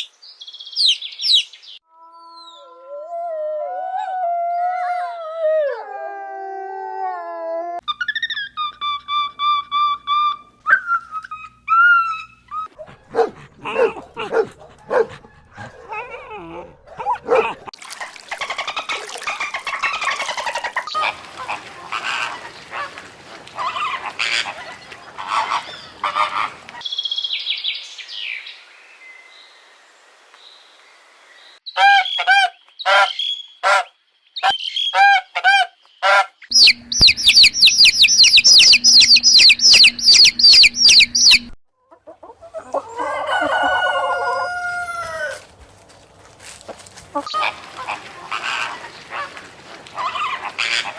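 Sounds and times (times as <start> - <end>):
animal calls: 7.9 - 17.7, 18.4 - 26.8, 31.8 - 45.4, 47.1 - 50.9
animal howling: 10.8 - 17.7
chorus of birds calling: 18.6 - 26.9, 36.0 - 41.6, 47.2 - 50.9
honk-like bird calls: 21.0 - 26.7.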